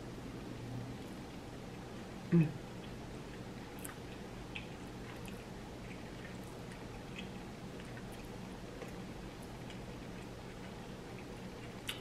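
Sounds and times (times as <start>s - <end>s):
chewing food: 2.7s - 12.0s.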